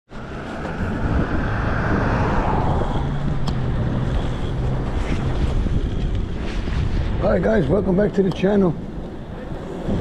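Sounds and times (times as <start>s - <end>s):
vehicle passing: 0.1s - 7.2s
wind on microphone: 0.1s - 7.9s, 8.8s - 10.0s
city street traffic: 0.1s - 10.0s.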